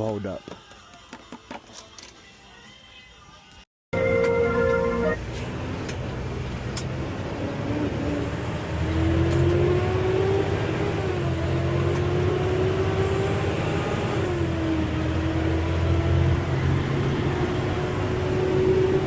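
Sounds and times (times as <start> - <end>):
truck engine accelerating: 4.0 - 19.0.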